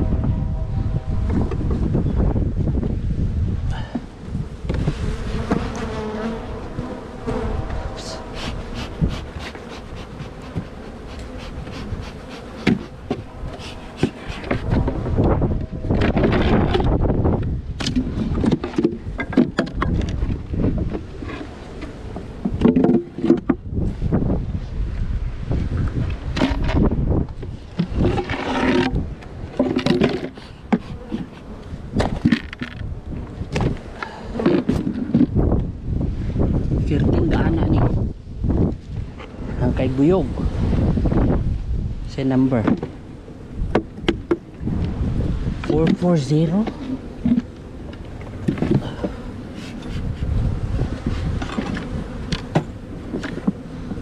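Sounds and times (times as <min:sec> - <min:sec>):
wind buffeting microphone: 0:00.0 - 0:54.0
honeybees buzzing: 0:03.9 - 0:17.4, 0:20.1 - 0:24.3, 0:26.2 - 0:36.5, 0:42.4 - 0:54.0
knocks and scrapes of equipment: 0:12.5 - 0:15.3, 0:15.9 - 0:17.0, 0:17.8 - 0:23.6, 0:26.3 - 0:26.9, 0:27.5 - 0:31.4, 0:32.0 - 0:32.9, 0:34.4 - 0:35.4.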